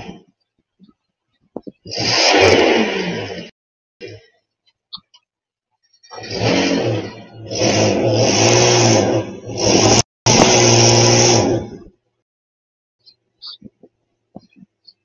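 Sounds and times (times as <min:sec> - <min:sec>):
small motor revving: 0:01.9 - 0:04.2, 0:06.1 - 0:11.8.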